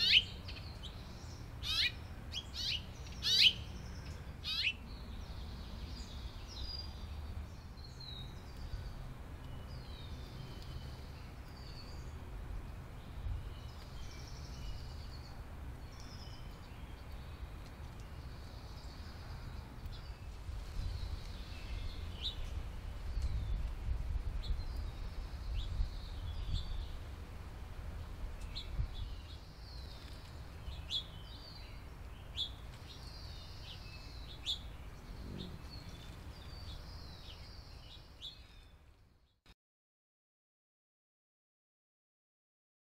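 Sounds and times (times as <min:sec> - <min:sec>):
songbirds chirping: 0:00.0 - 0:39.5.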